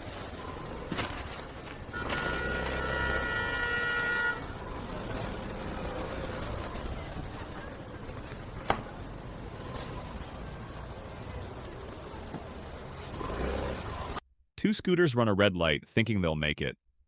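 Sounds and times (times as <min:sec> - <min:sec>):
traffic rumble: 0:00.0 - 0:14.2
vehicle horn blast: 0:01.9 - 0:04.6.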